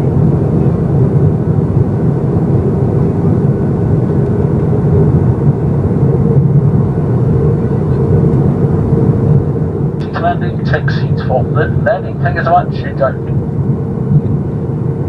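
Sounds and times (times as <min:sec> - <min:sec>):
jet engine rumble in cabin: 0:00.0 - 0:15.0
faint steady hum: 0:10.0 - 0:14.6.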